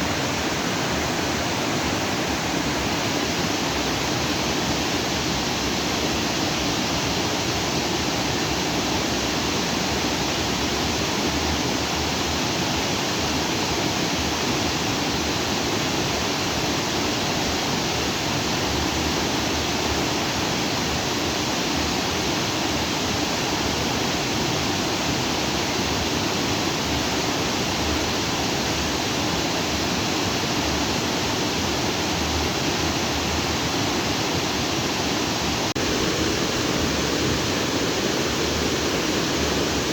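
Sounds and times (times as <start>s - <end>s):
stream flowing over rocks: 27.6s - 39.9s.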